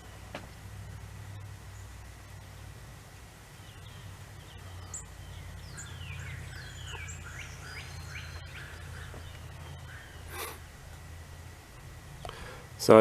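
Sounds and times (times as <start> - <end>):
steady low rumble: 0.0 - 13.0
birds chirping and singing: 3.5 - 11.0.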